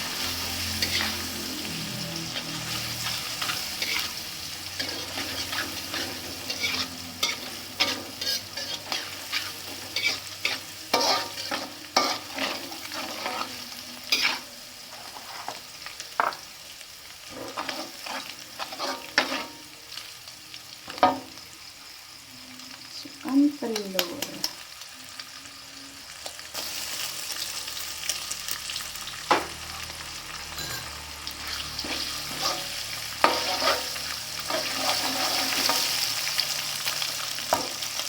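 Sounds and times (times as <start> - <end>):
spatula scraping pan: 0.0 - 15.7, 17.3 - 19.6, 30.6 - 36.1
paste sizzling in oil: 0.0 - 38.0.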